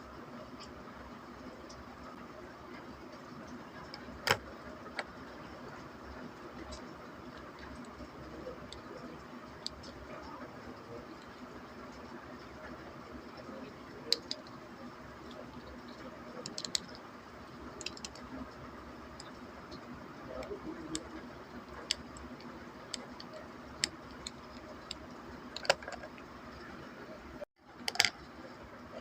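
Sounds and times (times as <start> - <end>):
plastic pieces clicking: 17.8 - 18.2, 25.6 - 26.1.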